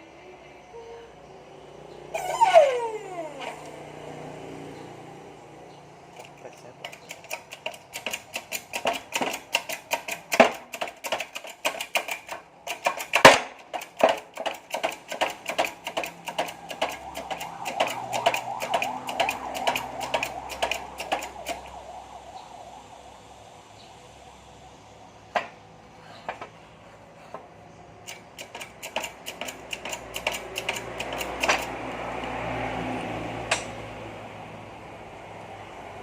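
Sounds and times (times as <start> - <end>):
hand tools clicking on metal: 6.1 - 21.7, 28.0 - 32.4, 33.5 - 33.8.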